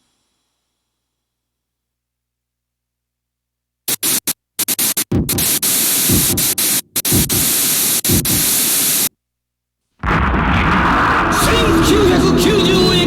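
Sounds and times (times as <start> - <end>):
electronic static hiss: 3.9 - 9.1
low falling swooshes: 10.1 - 13.0.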